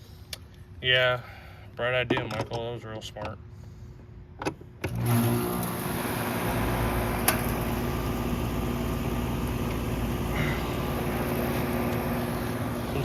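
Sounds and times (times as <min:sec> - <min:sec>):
air conditioner humming: 0:05.0 - 0:13.0.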